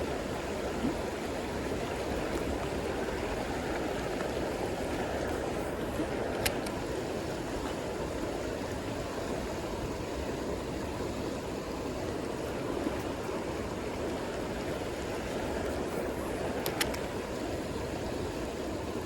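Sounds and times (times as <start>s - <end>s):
water rushing over rocks: 0.0s - 19.0s.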